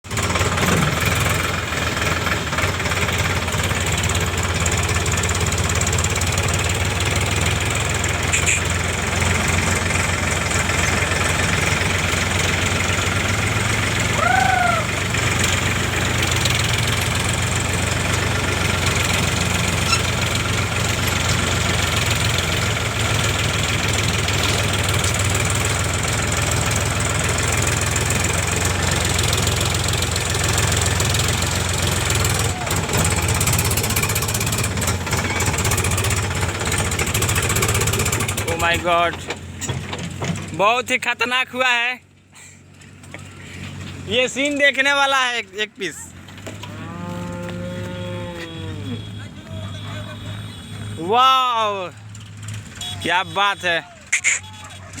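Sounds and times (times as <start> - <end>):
tractor diesel engine running: 0.0 - 55.0
short high squeak: 8.3 - 8.8, 19.8 - 20.2, 54.1 - 54.8.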